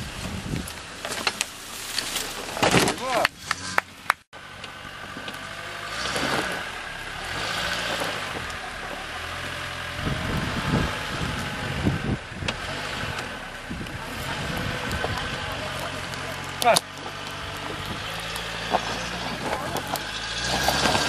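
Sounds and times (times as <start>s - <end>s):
wind noise on microphone: 0.0s - 0.9s, 9.8s - 15.8s
car engine running at low speed: 3.4s - 21.0s.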